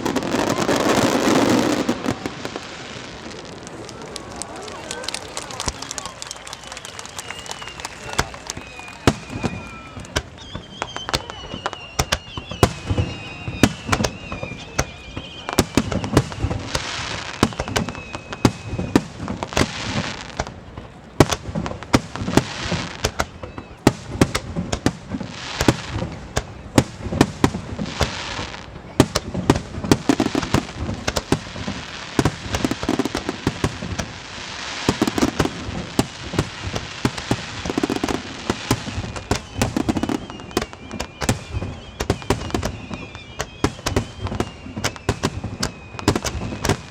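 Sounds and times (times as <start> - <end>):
fireworks booming and crackling: 0.0 - 46.9
high falling whistle: 3.9 - 16.6, 38.8 - 46.9.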